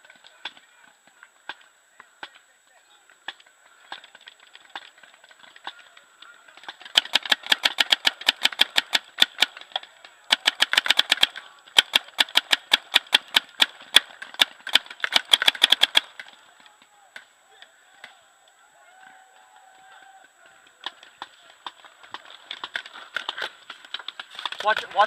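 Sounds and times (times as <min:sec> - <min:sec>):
paintball markers firing: 0:03.2 - 0:18.2, 0:20.5 - 0:25.0.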